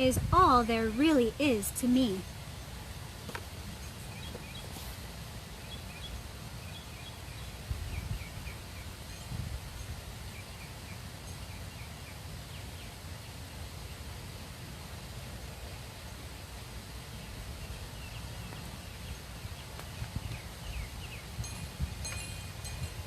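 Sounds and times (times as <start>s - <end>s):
steady background hiss: 0.0s - 23.0s
small birds chirping: 3.4s - 14.0s, 17.1s - 22.7s.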